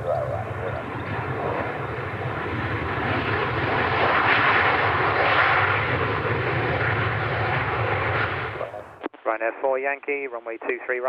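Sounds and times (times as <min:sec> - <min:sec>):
jet airliner engine roar: 0:00.0 - 0:09.0.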